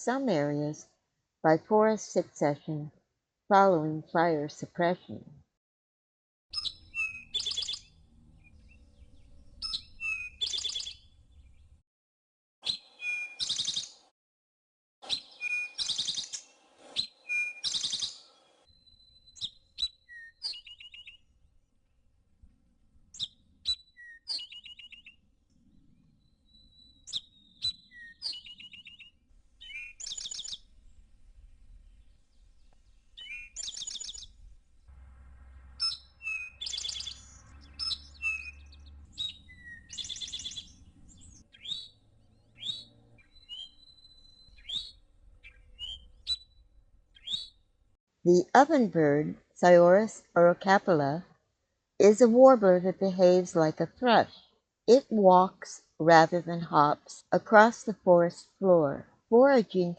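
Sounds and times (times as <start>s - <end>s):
bird song with buzzy trill: 6.5s - 11.7s, 12.6s - 14.0s, 15.0s - 21.3s, 23.2s - 25.2s, 26.0s - 30.7s, 31.8s - 34.4s, 35.8s - 47.6s, 52.2s - 54.6s.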